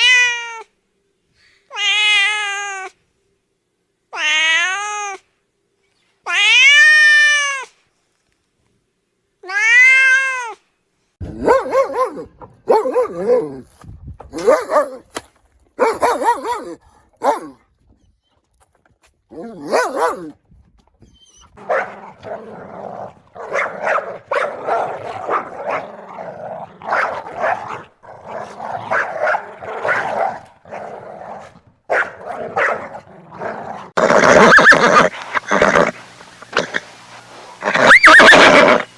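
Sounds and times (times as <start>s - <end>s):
dog barking and growling: 11.2s - 13.7s, 14.3s - 15.2s, 15.8s - 18.0s, 19.3s - 36.8s.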